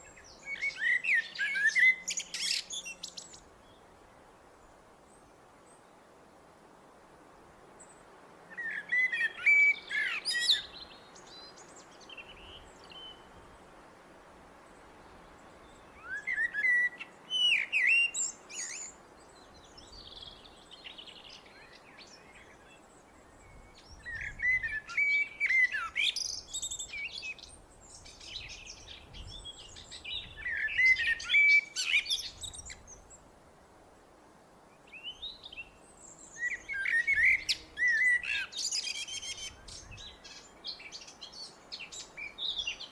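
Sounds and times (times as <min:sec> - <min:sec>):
blackbird singing: 0:00.0 - 0:03.8, 0:08.5 - 0:13.2, 0:15.7 - 0:33.1, 0:34.9 - 0:42.9.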